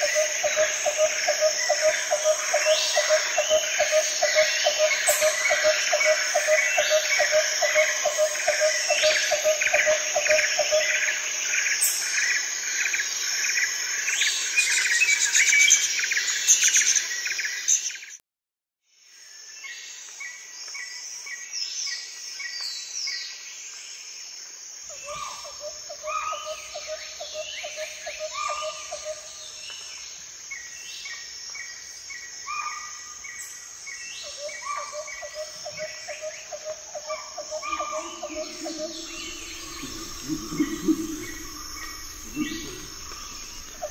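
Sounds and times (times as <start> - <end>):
insect chorus: 0.0 - 18.2, 18.9 - 43.9
birds calling: 34.2 - 43.9
rapid low trill: 38.4 - 43.9.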